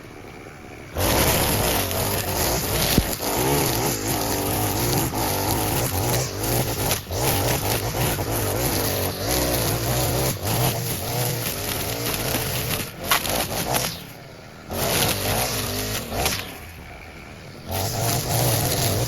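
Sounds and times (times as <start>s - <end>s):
lawn mower engine cutting grass: 0.0s - 19.0s.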